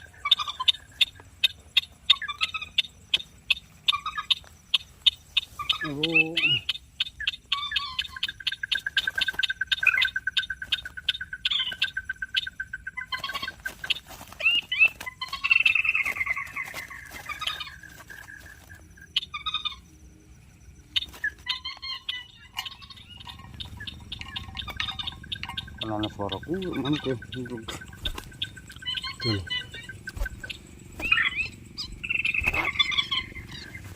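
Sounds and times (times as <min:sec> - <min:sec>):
bird rapid trill: 0:00.0 - 0:20.0, 0:20.8 - 0:33.9
falling rattling bird call: 0:21.0 - 0:33.9.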